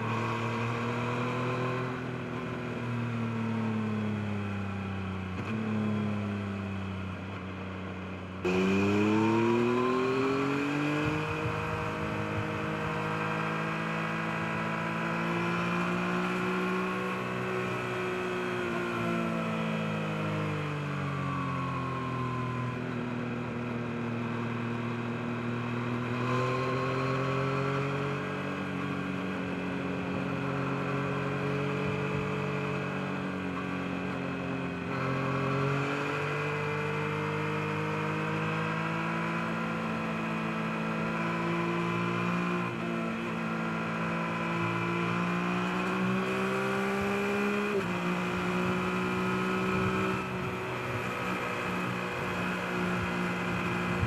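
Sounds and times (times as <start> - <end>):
motorcycle engine running: 47.3 - 54.0.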